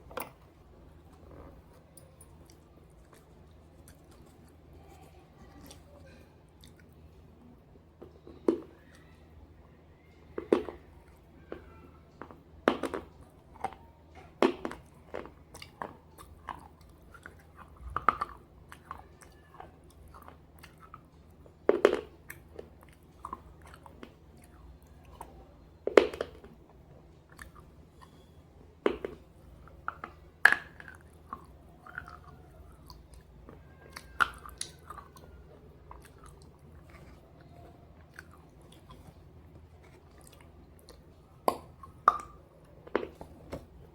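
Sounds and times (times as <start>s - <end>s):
faint low hum: 0.0s - 43.9s
chewing: 1.1s - 7.1s, 10.3s - 25.4s, 26.2s - 43.6s.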